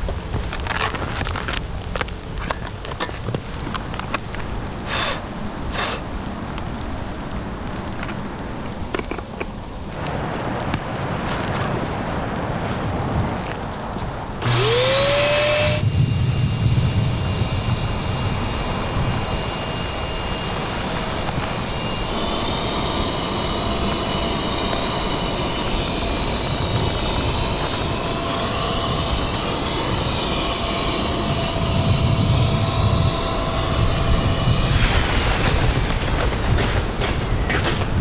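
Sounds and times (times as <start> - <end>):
electric air pump whining: 4.7 - 6.1, 14.4 - 37.8.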